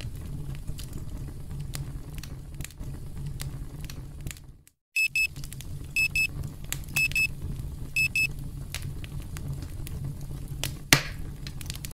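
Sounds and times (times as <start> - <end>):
crackling campfire: 0.0 - 12.0
timer alarm beeping: 5.0 - 5.3, 6.0 - 6.3, 7.0 - 7.3, 8.0 - 8.3.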